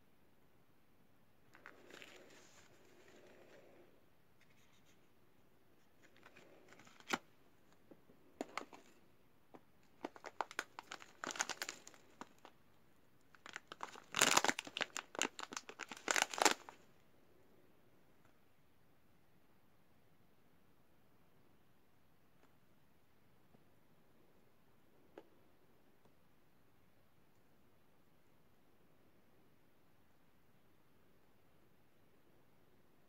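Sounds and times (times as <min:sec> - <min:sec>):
wrapping crinkling and tearing: 0:06.0 - 0:07.2, 0:09.9 - 0:12.5, 0:13.3 - 0:16.8.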